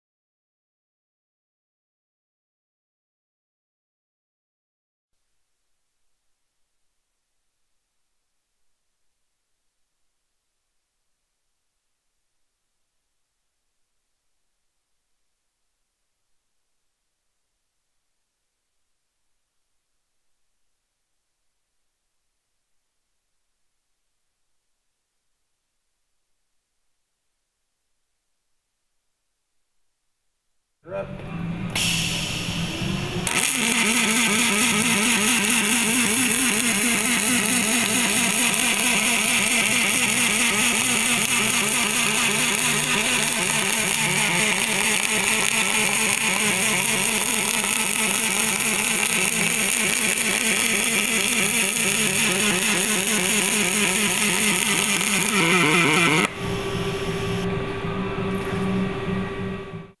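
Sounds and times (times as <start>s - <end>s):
steady hum with held tone: 29.5s - 60.0s
welding arc buzzing and crackling: 31.8s - 57.5s.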